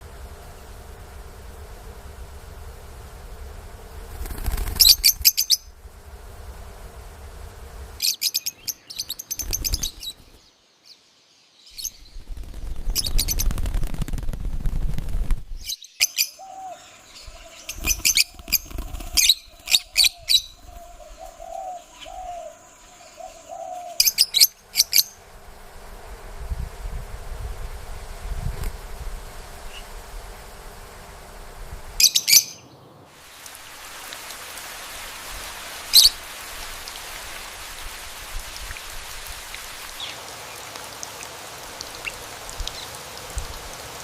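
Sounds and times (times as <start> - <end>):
small parrots chirping: 4.8 - 5.7, 8.0 - 10.2, 15.6 - 25.2, 32.0 - 32.6
low rumble: 5.6 - 8.0.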